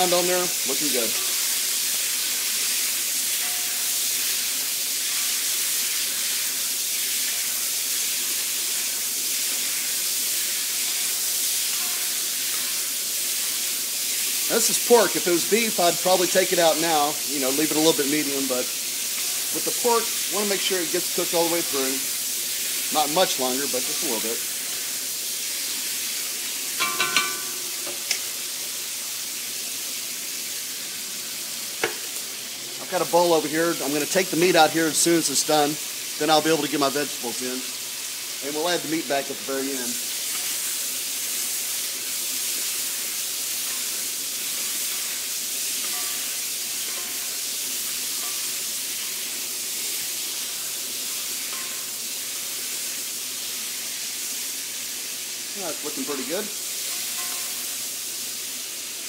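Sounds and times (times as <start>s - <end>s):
meat sizzling in hot oil: 0.0s - 59.0s
metal clinks: 26.8s - 27.7s.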